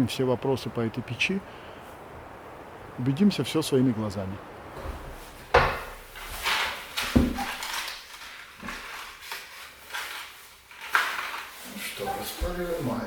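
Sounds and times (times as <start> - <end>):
short knocks: 4.8 - 6.0
scrapes: 4.8 - 13.0.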